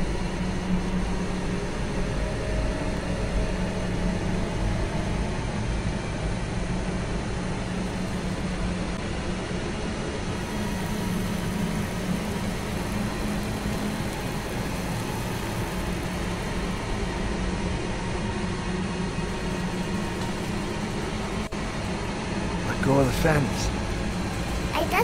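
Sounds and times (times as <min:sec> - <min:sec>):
low hum: 0:00.0 - 0:24.8
rumbling drone: 0:10.2 - 0:24.8.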